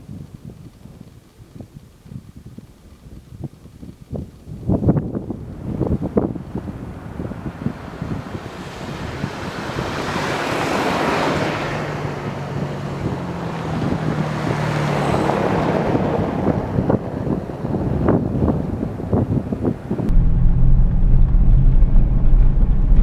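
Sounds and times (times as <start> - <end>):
wind rushing over microphone: 0.0 - 23.0
low engine hum: 5.0 - 23.0.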